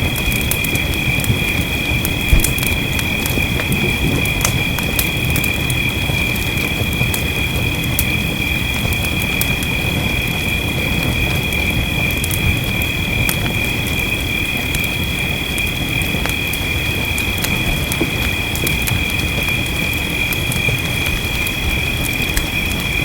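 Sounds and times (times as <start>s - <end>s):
wood fire crackling and popping: 0.0s - 23.0s
rain rushing: 1.4s - 9.1s.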